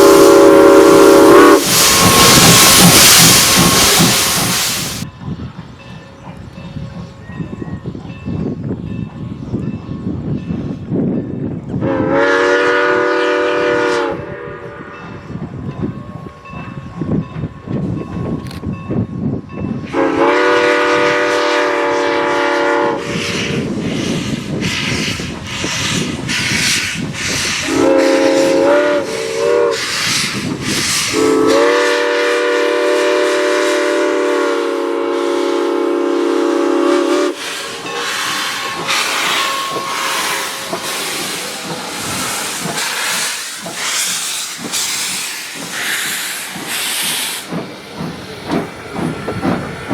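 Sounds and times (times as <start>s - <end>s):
locomotive exhaust chuffing: 0.0s - 5.0s, 37.2s - 49.9s
steam locomotive chime whistle: 0.0s - 5.0s, 11.8s - 17.5s, 19.7s - 23.6s, 27.6s - 44.2s
steam hissing: 0.0s - 5.1s, 19.9s - 49.9s.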